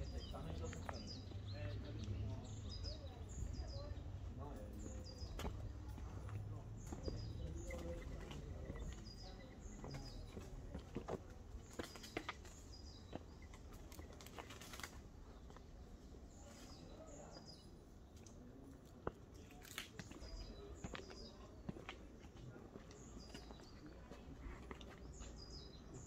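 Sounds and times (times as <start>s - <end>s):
small bird chirping: 0.0s - 15.6s.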